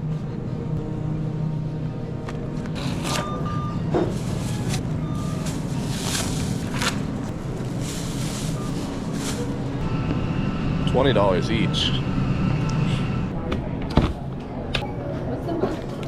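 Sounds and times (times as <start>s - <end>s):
truck engine humming: 0.0s - 13.5s
short electronic beeps: 3.2s - 6.1s.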